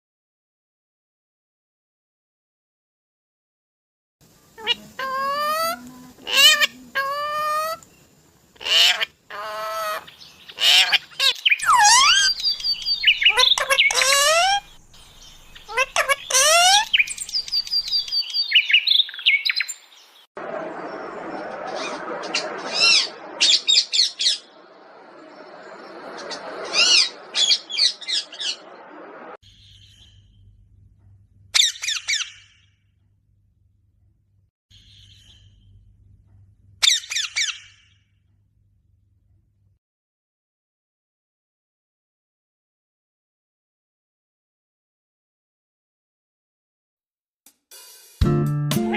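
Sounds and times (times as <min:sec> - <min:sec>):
parrot calling: 0:04.6 - 0:07.8, 0:08.6 - 0:19.6.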